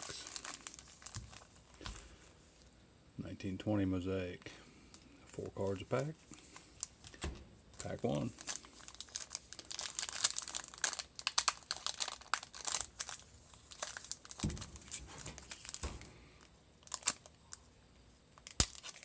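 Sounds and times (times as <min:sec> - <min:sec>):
card pack wrapper crinkling and tearing: 0:00.0 - 0:02.1, 0:07.8 - 0:16.0, 0:16.8 - 0:17.6, 0:18.4 - 0:19.0
dull thump: 0:14.4 - 0:16.4.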